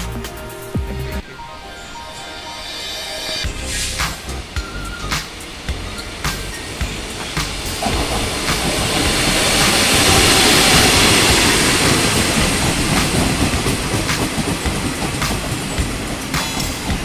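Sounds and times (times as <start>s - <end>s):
train locomotive rumbling: 1.2s - 17.0s
train wheels clicking over rails: 3.8s - 17.0s.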